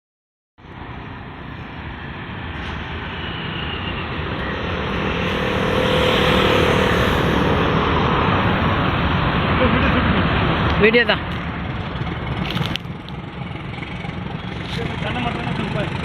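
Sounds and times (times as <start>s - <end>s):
faint whine: 0.6s - 9.6s
electric train rumbling: 0.7s - 16.0s.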